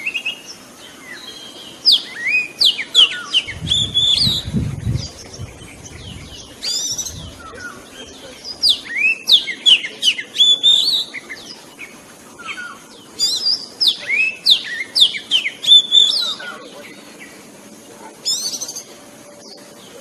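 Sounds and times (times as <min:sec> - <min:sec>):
bird singing whistled phrases: 0:00.0 - 0:11.6, 0:12.4 - 0:16.6.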